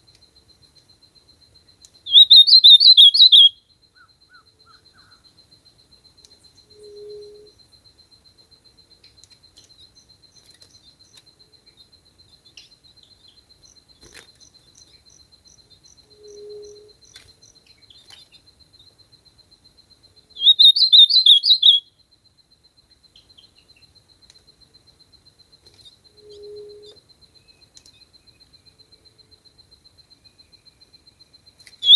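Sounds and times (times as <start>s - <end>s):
bird singing rapid phrase: 2.1s - 3.6s, 20.4s - 21.9s.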